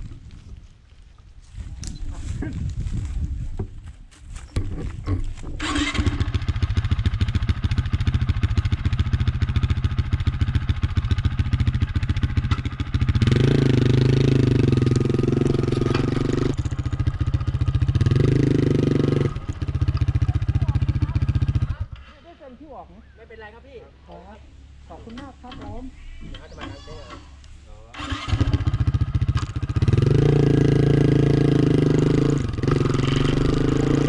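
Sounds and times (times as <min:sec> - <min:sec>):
motorcycle engine revving: 0:04.6 - 0:22.2, 0:27.9 - 0:34.0.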